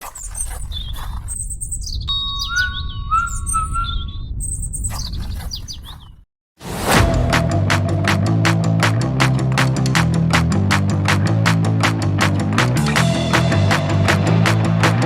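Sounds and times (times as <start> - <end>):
birds chirping: 0.0 - 6.2.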